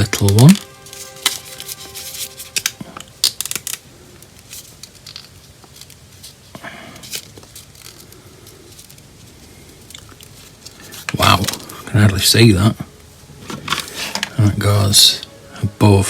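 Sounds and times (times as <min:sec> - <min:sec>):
sticker peeling rustle: 0:00.0 - 0:11.9.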